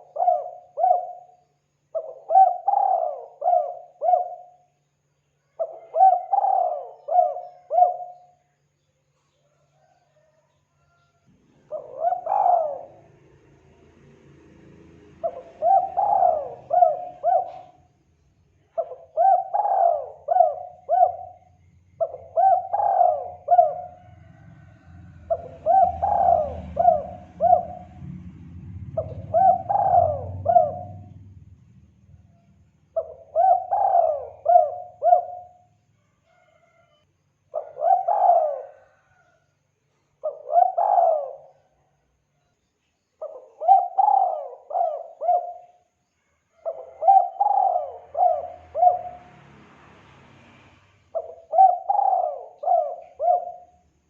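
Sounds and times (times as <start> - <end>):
dove cooing: 0.0 - 4.8, 5.5 - 8.4, 9.5 - 10.9, 11.5 - 13.4, 15.2 - 17.9, 18.7 - 28.2, 28.9 - 31.4, 33.0 - 36.8, 37.5 - 39.4, 40.2 - 41.8, 43.2 - 45.9, 46.5 - 49.4, 51.1 - 54.0.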